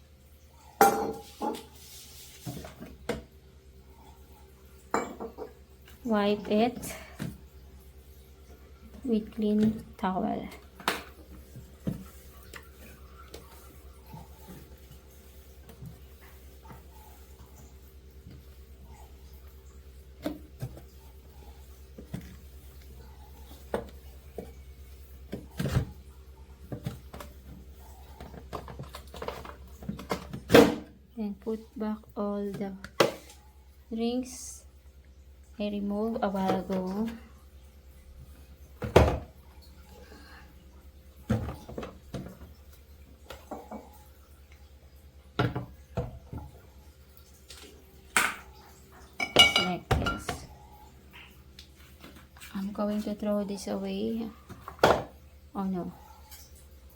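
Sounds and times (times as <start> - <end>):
hands handling refrigerator parts: 26.6 - 30.5.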